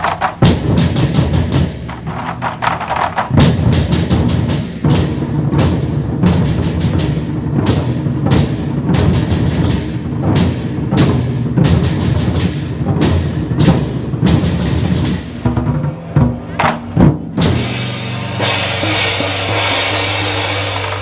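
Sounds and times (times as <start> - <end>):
drum beaten fast: 0.0 - 5.2, 16.6 - 21.0
cymbals crashing: 17.5 - 21.0.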